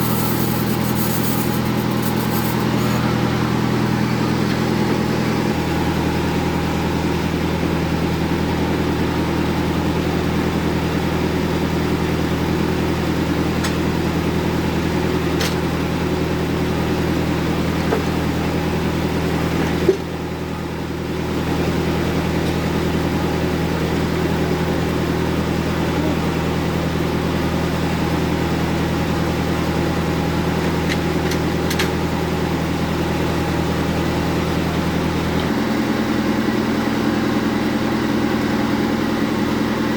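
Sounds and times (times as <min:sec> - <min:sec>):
bandsaw mill humming: 0:00.0 - 0:11.1.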